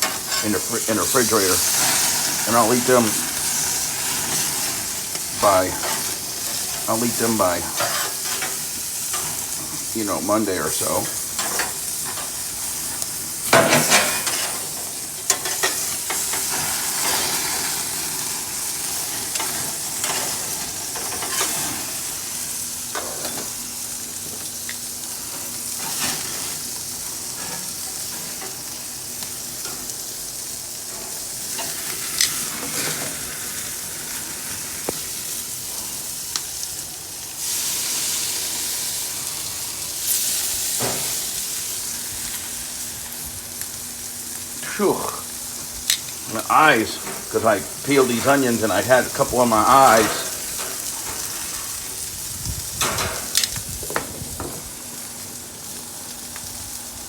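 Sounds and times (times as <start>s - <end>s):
steak sizzling: 0.0s - 57.0s
cooking utensils clattering: 13.4s - 18.1s.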